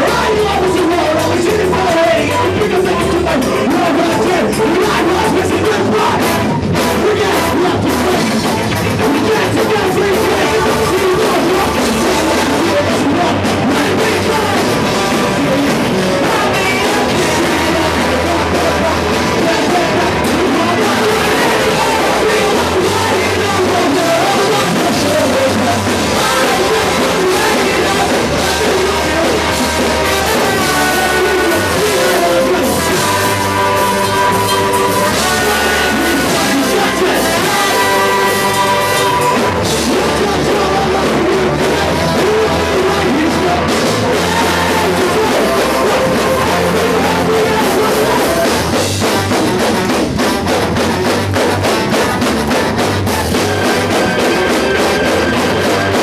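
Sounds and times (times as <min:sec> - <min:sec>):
drum kit: 0:00.0 - 0:56.0
electric guitar: 0:00.0 - 0:56.0
person singing: 0:00.0 - 0:56.0.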